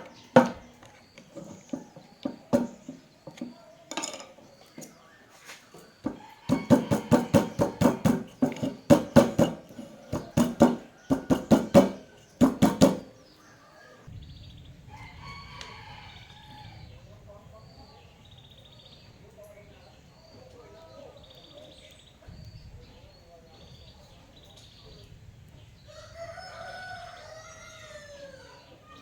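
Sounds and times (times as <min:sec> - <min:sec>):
sharp ringing knocks: 0:01.3 - 0:04.3, 0:06.1 - 0:13.2
rooster crowing: 0:06.1 - 0:08.7, 0:09.6 - 0:14.1, 0:14.9 - 0:17.0, 0:25.9 - 0:29.0.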